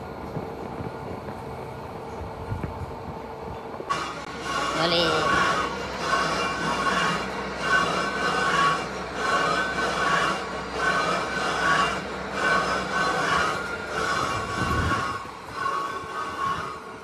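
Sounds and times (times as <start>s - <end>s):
metalworking machine squealing: 3.9s - 17.0s.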